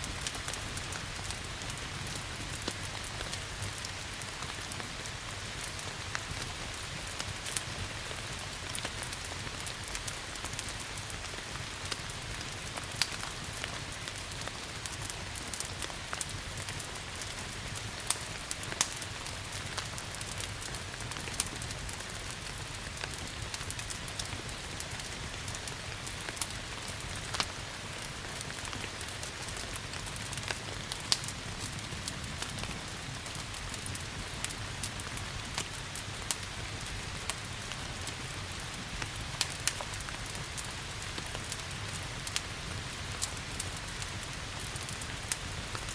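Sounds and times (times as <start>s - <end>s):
steady rain hiss: 0.0s - 45.9s
wood fire crackling: 0.0s - 45.9s.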